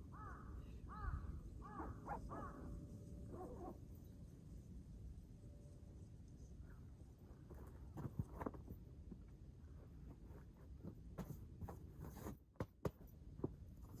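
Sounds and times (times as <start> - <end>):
rustling and scraping: 7.2 - 14.0.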